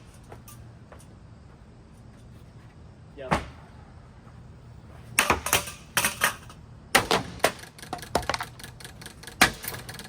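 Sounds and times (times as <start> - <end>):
ceiling fan parts clattering: 0.0 - 3.6.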